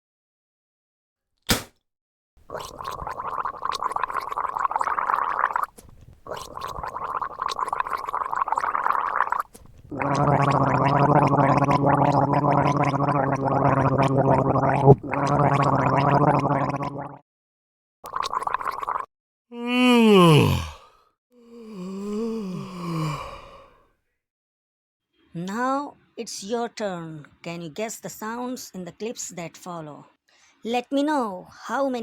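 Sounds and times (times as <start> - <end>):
person gargling water: 2.5 - 17.2, 18.1 - 20.8.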